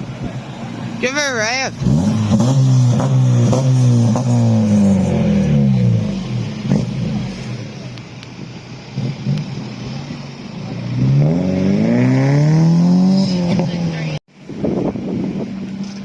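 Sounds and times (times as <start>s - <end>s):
car engine revving: 0.0s - 14.2s.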